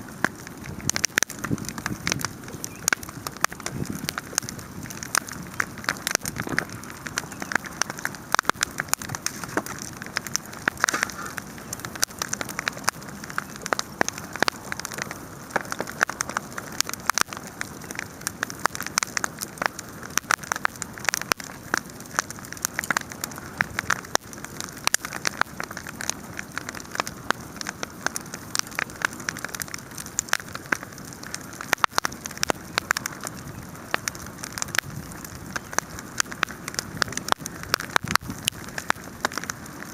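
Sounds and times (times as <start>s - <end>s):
fire hiss: 0.0s - 22.0s
bonfire crackling and popping: 0.0s - 39.9s.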